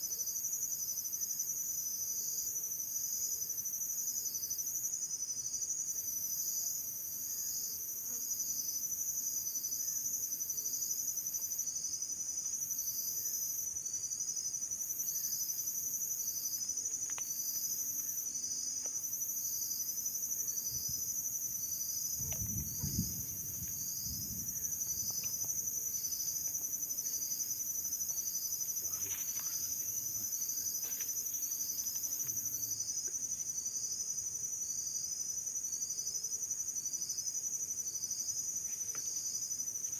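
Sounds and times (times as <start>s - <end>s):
insects chirring: 0.1s - 39.9s
low thump and rumble: 22.2s - 25.6s.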